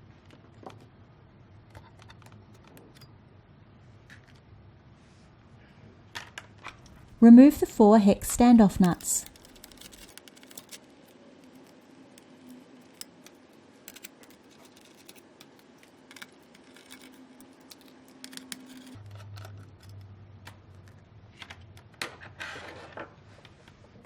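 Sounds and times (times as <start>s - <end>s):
faint steady hum: 0.0s - 24.0s
hand tools clicking on metal nuts: 8.6s - 19.0s.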